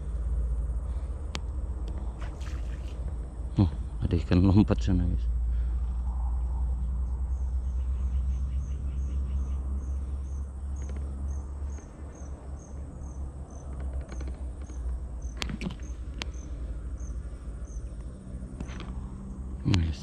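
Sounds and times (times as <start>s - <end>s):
insect chirping: 0.0s - 4.2s, 5.2s - 20.0s
low steady rumble: 0.0s - 20.0s
sharp clicks: 10.7s - 11.1s, 13.6s - 16.4s.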